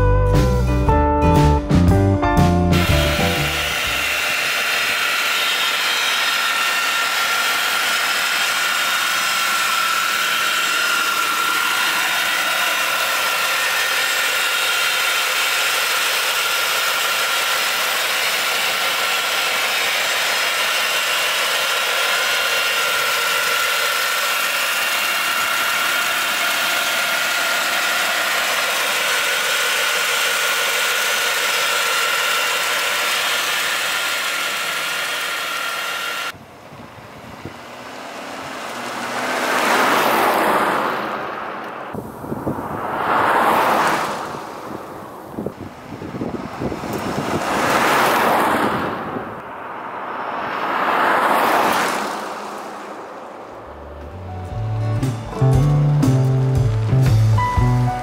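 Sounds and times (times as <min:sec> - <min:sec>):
car engine idling: 0:00.0 - 0:58.0
steady high whine: 0:02.7 - 0:36.4.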